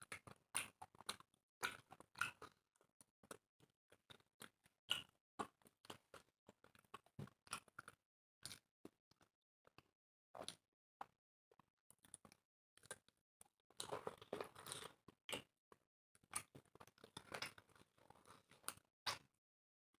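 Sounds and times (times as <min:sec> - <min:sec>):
chewing and mouth noises: 0:00.2 - 0:02.6.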